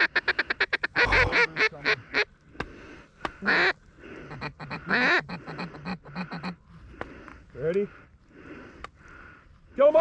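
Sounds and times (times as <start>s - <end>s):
ducks quacking: 0.0s - 2.4s, 3.2s - 6.8s.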